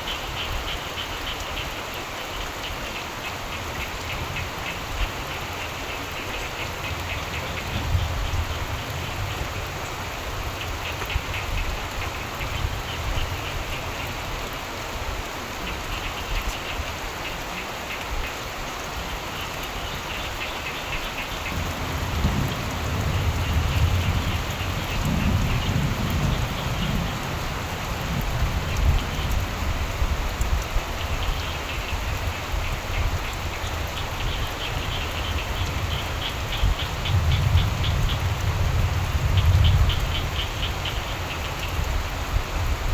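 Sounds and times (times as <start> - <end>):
steady rain falling: 0.0 - 42.9
distant thunder rumble: 21.4 - 30.2.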